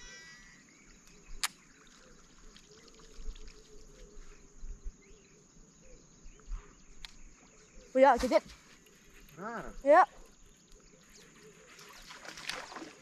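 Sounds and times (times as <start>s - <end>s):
high insect drone: 0.0s - 11.8s
sharp click: 1.0s - 1.6s
water trickling: 1.6s - 4.1s, 11.4s - 13.0s.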